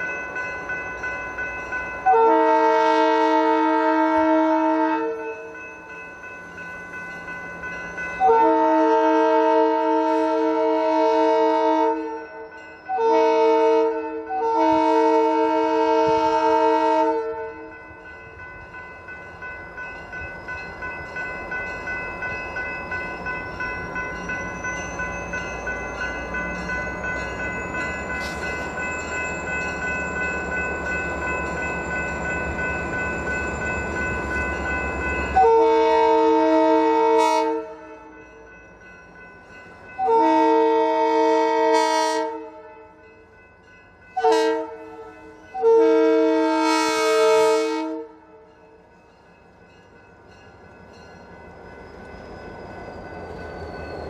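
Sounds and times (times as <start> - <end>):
diesel freight train approaching: 0.0 - 54.0
locomotive horn: 2.0 - 5.2, 8.2 - 12.2, 12.9 - 17.6, 35.4 - 38.1, 40.0 - 42.8, 44.2 - 48.4.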